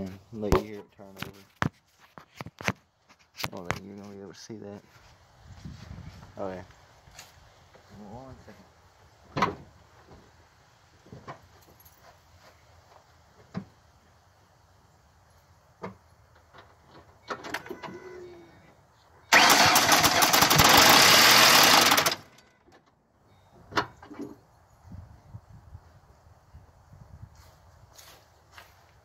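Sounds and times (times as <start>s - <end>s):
car engine cranking: 19.3s - 22.6s.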